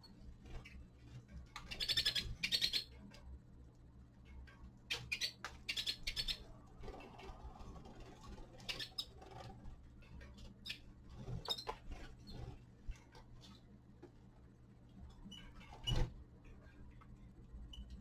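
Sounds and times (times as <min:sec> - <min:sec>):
clicks and rustles of finches: 0:00.0 - 0:03.4, 0:04.2 - 0:14.3
high finch chirps: 0:01.6 - 0:02.9, 0:04.9 - 0:06.5, 0:08.6 - 0:09.2.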